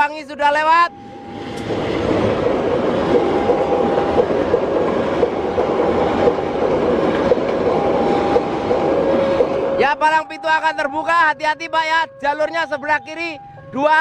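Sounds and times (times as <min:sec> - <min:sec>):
train rumble: 0:00.6 - 0:13.4
wheels clickety-clack over rail joints: 0:01.6 - 0:11.1.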